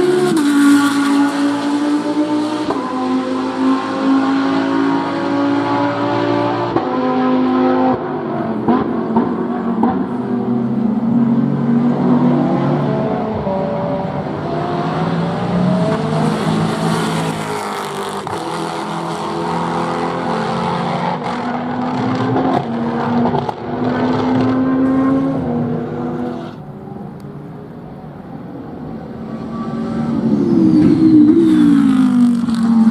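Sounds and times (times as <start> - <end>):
racing car engines passing: 0.0 - 32.9.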